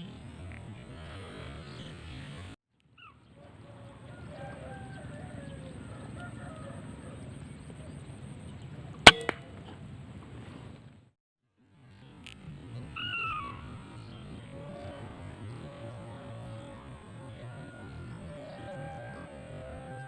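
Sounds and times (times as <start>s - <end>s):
steady outdoor background: 0.0s - 20.0s
air rifle shot: 9.0s - 9.6s
birds calling faintly: 11.8s - 20.0s.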